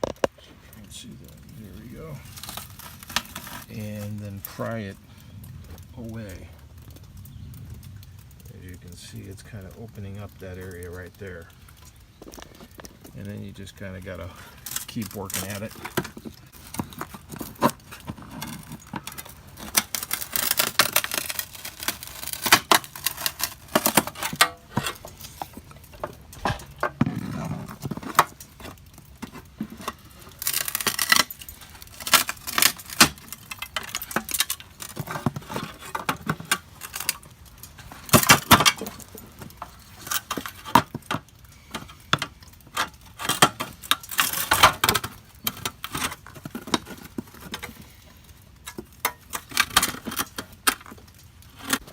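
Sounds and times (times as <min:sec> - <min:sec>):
pry bar scraping metal window frame: 0:01.8 - 0:04.6, 0:13.3 - 0:47.9.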